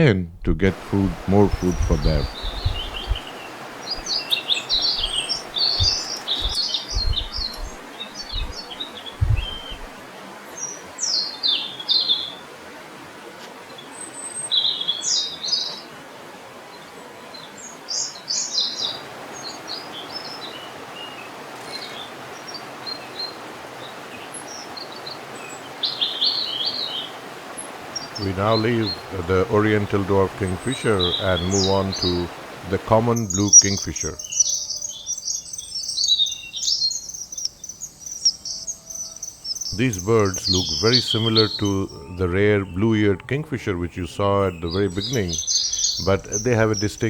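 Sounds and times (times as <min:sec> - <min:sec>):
low thumps: 0:00.0 - 0:03.3, 0:03.9 - 0:10.0
background hiss: 0:00.0 - 0:16.8, 0:17.4 - 0:47.0
high-pitched bird chirps: 0:01.5 - 0:03.3, 0:03.9 - 0:09.9.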